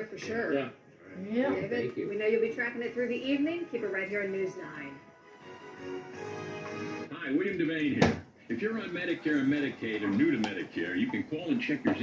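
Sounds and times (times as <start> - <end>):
television music with held chords: 0.0 - 12.0.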